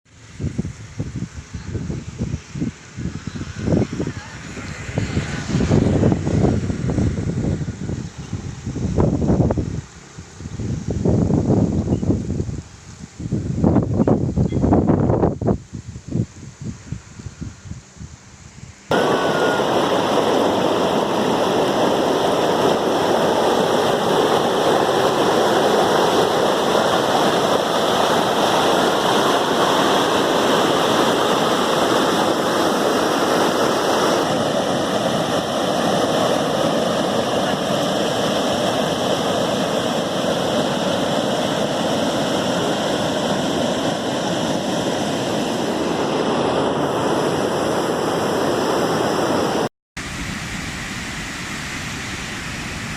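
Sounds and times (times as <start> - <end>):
river water rushing: 18.9 - 52.9.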